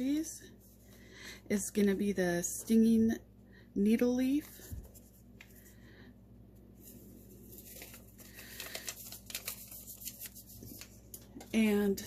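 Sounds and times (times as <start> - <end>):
packaging crinkling and rustling: 7.4 - 11.5.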